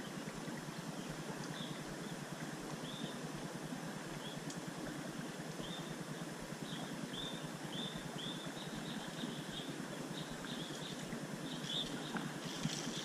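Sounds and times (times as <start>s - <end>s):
steady outdoor hiss: 0.0s - 13.0s
bird chirping: 6.6s - 13.0s.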